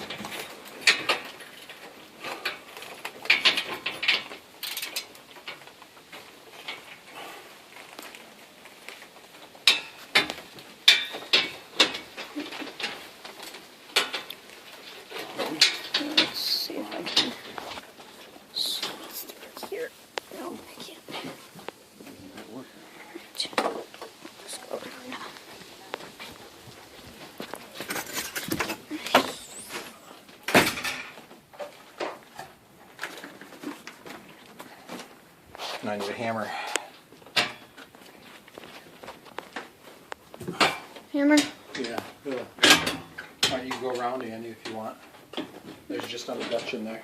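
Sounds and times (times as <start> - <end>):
metal knocks and clanks: 9.6 - 18.0, 30.4 - 32.2, 40.4 - 46.9.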